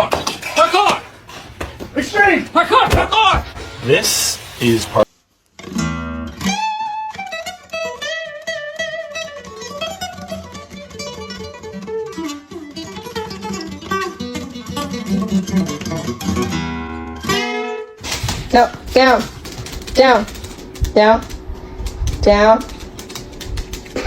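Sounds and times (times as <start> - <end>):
acoustic guitar plucked and strummed: 2.7 - 4.4, 5.6 - 19.1.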